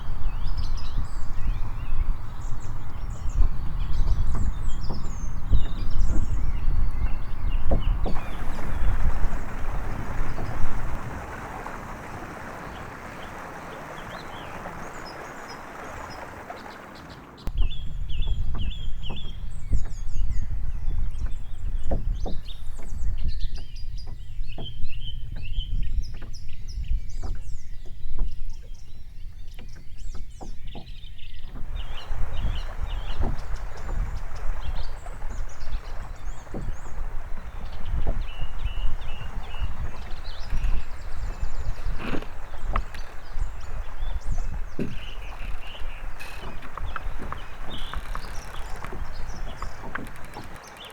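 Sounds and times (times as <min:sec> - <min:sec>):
low uneven rumble: 0:00.0 - 0:50.9
steady rushing hiss: 0:08.1 - 0:17.4, 0:31.6 - 0:50.9.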